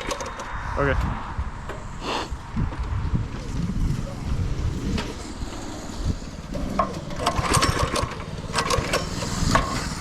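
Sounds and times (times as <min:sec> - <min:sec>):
small engine running: 0:04.7 - 0:10.0
sharp rattles and clacks: 0:06.4 - 0:10.0.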